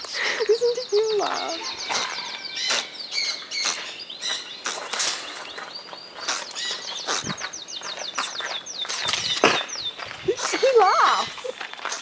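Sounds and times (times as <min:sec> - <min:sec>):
bird harsh squawks: 0:01.2 - 0:05.2, 0:06.2 - 0:07.5.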